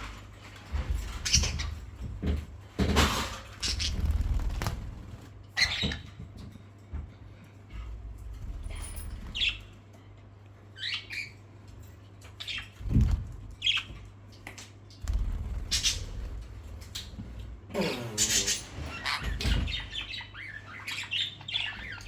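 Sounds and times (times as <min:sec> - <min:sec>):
parrots squawking and chirping: 0:00.8 - 0:01.9, 0:03.5 - 0:06.2, 0:08.7 - 0:09.8, 0:10.7 - 0:11.5, 0:15.1 - 0:17.2, 0:18.1 - 0:22.0
low rumbling noise: 0:15.0 - 0:17.7.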